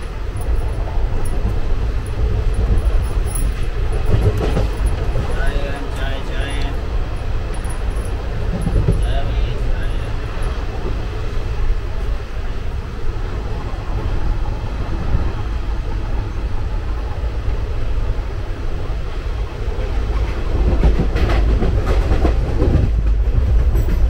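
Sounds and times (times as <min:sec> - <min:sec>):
wheels clattering over rail joints: 0:00.0 - 0:11.1
train coach rumbling: 0:00.0 - 0:24.0.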